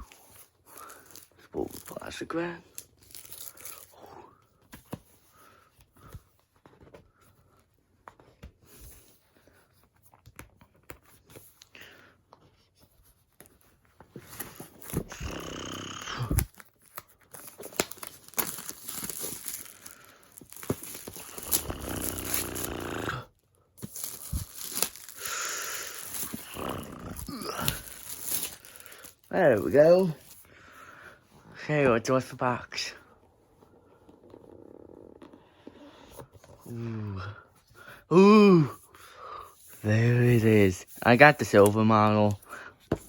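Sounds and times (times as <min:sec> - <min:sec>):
shrink wrap tearing and crinkling: 0:00.0 - 0:04.0, 0:14.4 - 0:30.3.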